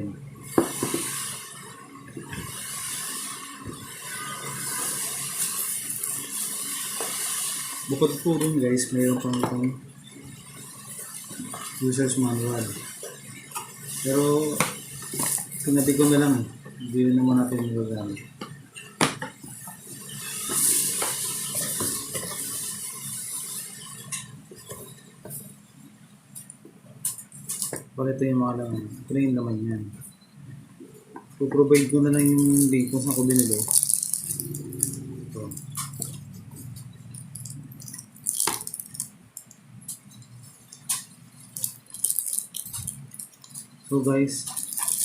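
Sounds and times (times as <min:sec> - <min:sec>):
low steady hum: 0:00.0 - 0:45.0
small plastic items clattering: 0:32.1 - 0:34.9, 0:37.4 - 0:39.5, 0:40.7 - 0:45.0
packaging crinkling: 0:32.1 - 0:36.2, 0:37.2 - 0:45.0.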